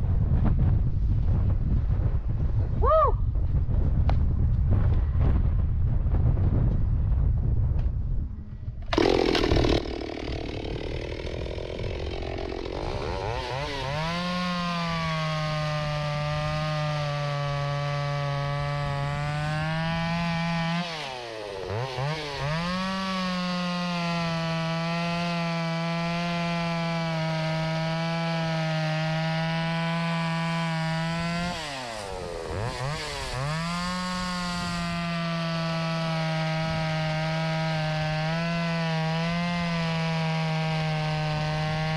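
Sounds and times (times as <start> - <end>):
chainsaw cutting wood: 8.8 - 41.9.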